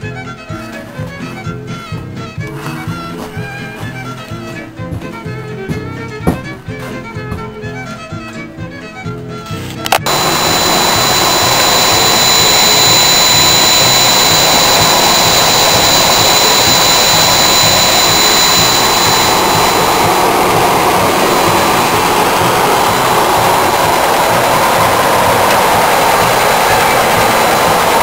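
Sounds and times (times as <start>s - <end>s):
thin high whine: 9.9s - 28.0s
vehicle engine running: 10.1s - 28.0s.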